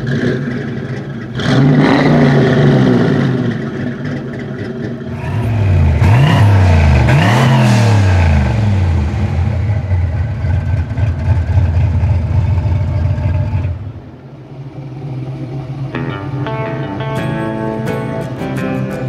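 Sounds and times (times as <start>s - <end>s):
car engine accelerating past: 5.0s - 13.9s
guitar music: 15.9s - 19.0s.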